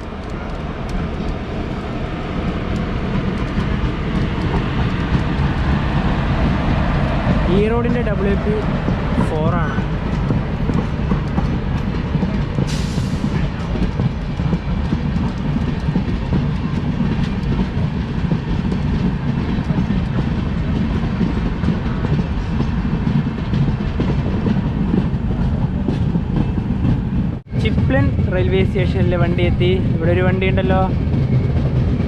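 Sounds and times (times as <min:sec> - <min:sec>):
train wheels rumbling: 0:00.0 - 0:32.0.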